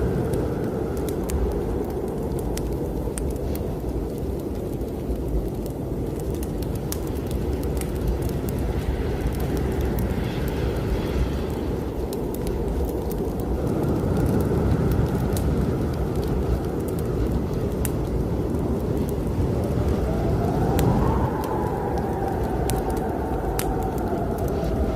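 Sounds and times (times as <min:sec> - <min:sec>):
strong wind blowing: 0:00.0 - 0:24.9
wood fire crackling: 0:00.0 - 0:24.9.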